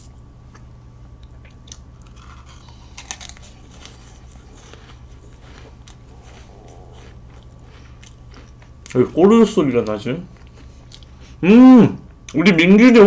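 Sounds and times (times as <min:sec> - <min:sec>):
chewing with wet clicks and smacks: 0:00.5 - 0:09.0, 0:09.8 - 0:11.4.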